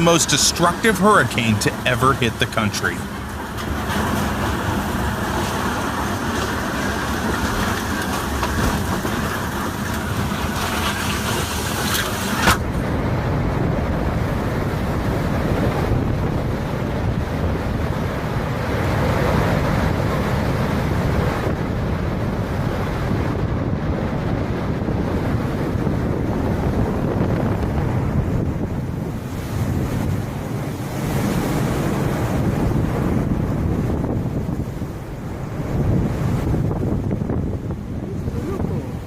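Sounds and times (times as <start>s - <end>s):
dull deep rushing noise: 0.0s - 11.6s
storm wind and rain: 0.0s - 39.0s.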